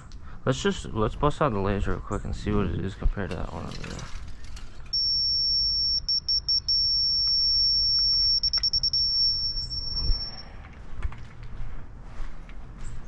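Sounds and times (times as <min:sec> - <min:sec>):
high-pitched steady tone: 0:05.0 - 0:10.5
quick electronic beeps: 0:05.0 - 0:10.5.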